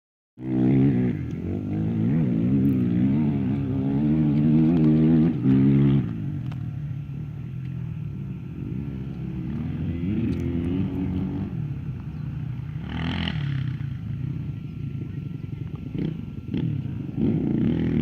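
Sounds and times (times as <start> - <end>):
distant dirt bike engine revving: 0.4 - 18.0.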